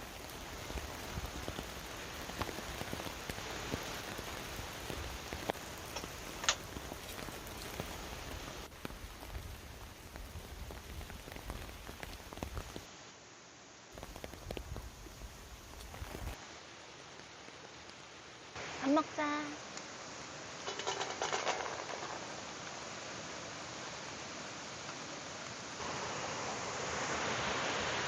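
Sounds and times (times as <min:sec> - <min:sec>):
raindrops ticking close by: 0:00.0 - 0:12.9, 0:13.9 - 0:21.2
heavy rain falling: 0:00.0 - 0:13.0, 0:13.7 - 0:28.0.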